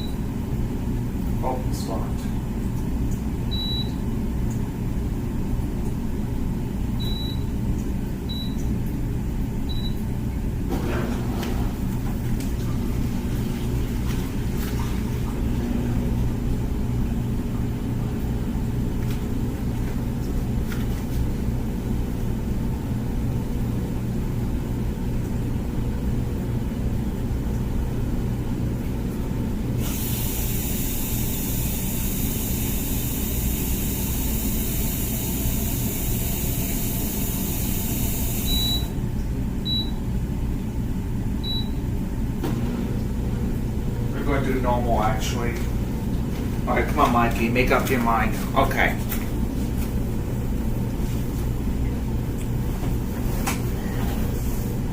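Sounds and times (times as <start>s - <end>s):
dishwasher humming: 0.0s - 54.9s
short high beeps: 38.4s - 38.9s.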